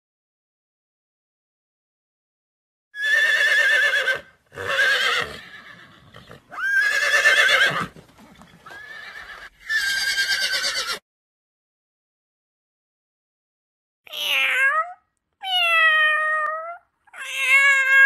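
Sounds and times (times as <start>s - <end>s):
horse whinnying: 3.0s - 11.0s.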